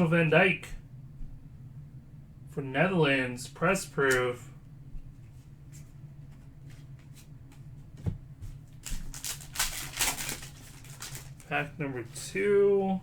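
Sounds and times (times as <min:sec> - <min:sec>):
paper and foil rustling: 0:08.6 - 0:12.2.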